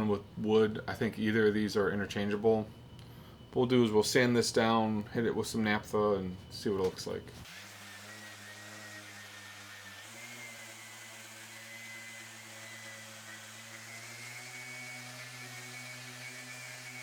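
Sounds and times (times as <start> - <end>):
electric sander running: 7.4 - 17.0.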